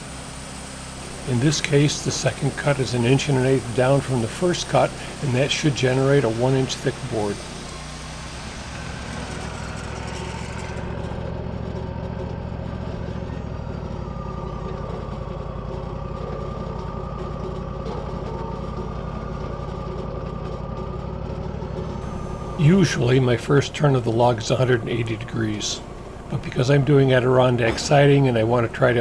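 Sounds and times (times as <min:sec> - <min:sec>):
steady high whine: 0:00.0 - 0:09.9, 0:22.0 - 0:29.0
sawmill engine running: 0:00.0 - 0:17.4, 0:22.0 - 0:29.0.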